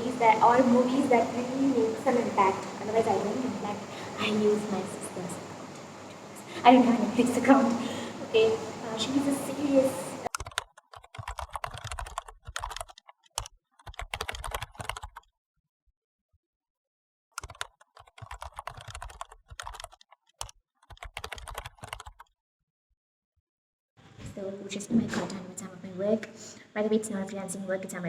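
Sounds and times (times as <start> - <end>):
laptop keyboard typing: 9.8 - 15.3, 17.4 - 22.3.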